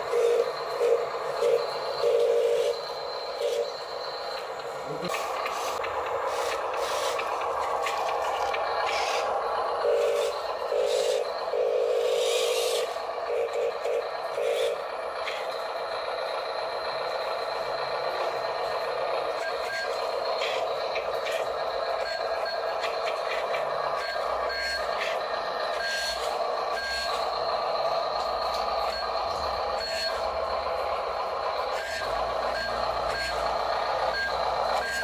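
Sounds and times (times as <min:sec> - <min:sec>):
toy truck electric motor whir: 0:00.0 - 0:35.0.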